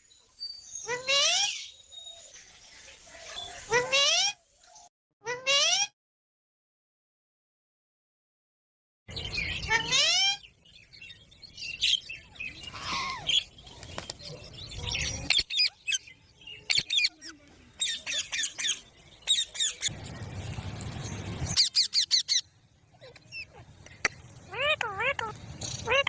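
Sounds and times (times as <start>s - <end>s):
parrot squawking: 21.6s - 22.5s, 24.5s - 26.0s.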